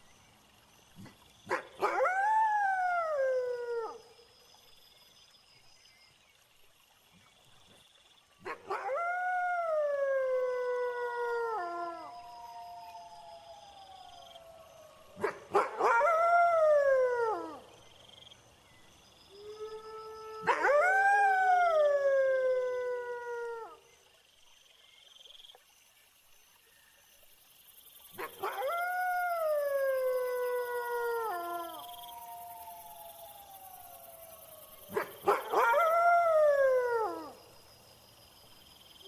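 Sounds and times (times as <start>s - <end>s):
crickets chirping: 0.0s - 39.0s
wolves howling: 8.7s - 17.6s, 19.4s - 23.8s, 28.4s - 37.4s.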